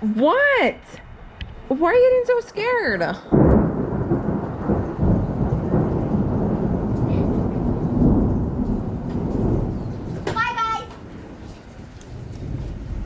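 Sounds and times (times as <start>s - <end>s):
rain falling: 0.0s - 13.0s
thunder clap and rumble: 0.5s - 13.0s.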